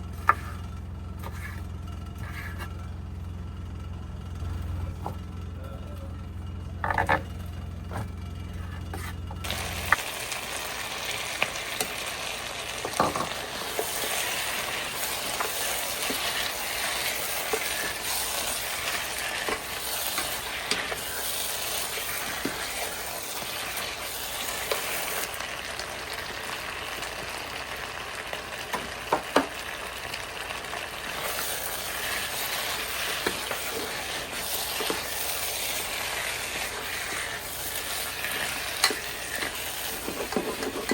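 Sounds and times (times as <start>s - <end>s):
low hum: 0.0s - 10.0s
food sizzling in a pan: 9.4s - 40.9s.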